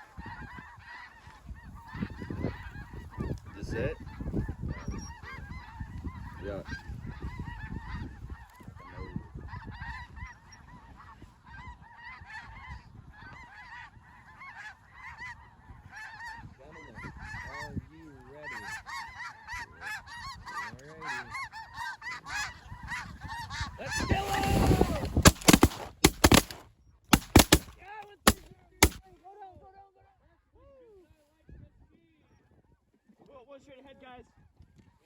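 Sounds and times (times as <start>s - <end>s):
geese honking: 18.4s - 26.6s
shotgun blasts: 24.2s - 29.0s.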